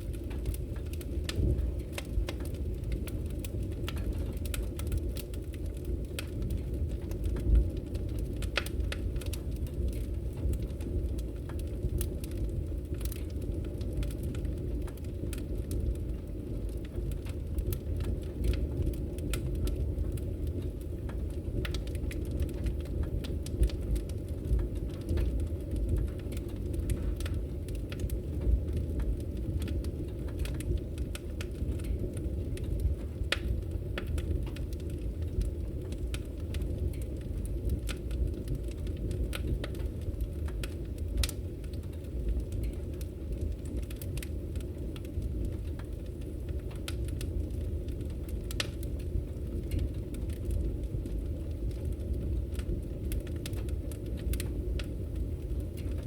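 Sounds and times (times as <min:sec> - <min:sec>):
fire crackling and popping: 0:00.0 - 0:56.0
wood fire burning: 0:00.0 - 0:56.0.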